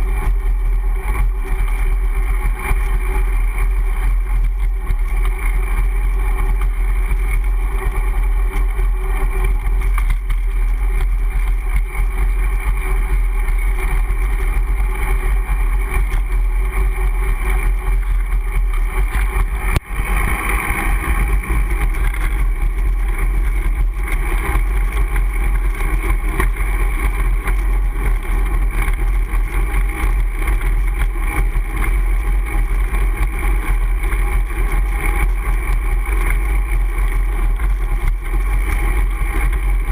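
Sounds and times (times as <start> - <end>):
road noise: 0.0 - 30.6.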